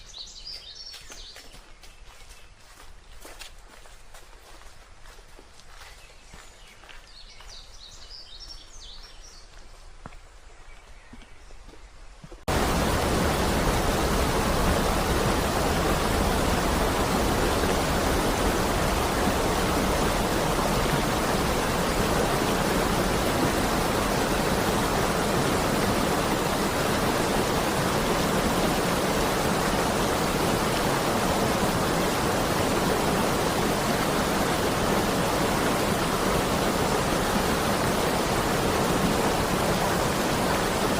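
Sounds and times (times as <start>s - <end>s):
faint forest ambience: 0.0s - 40.9s
stream rushing: 12.5s - 40.9s.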